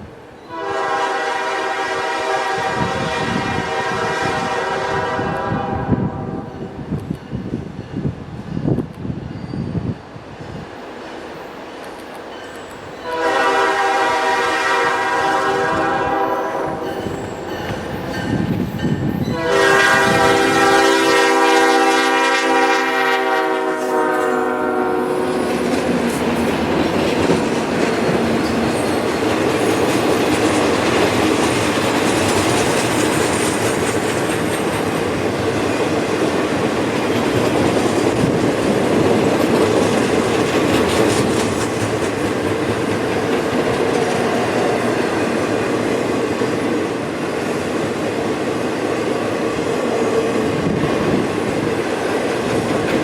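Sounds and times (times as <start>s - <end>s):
locomotive air horn blasts: 0.5s - 6.5s, 13.0s - 17.8s, 19.3s - 25.6s
train wheels clattering on rails: 6.6s - 21.2s, 25.2s - 53.0s.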